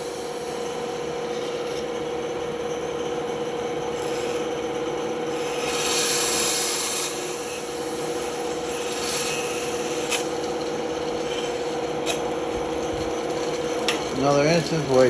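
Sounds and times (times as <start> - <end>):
band saw cutting wood: 5.3 - 15.0.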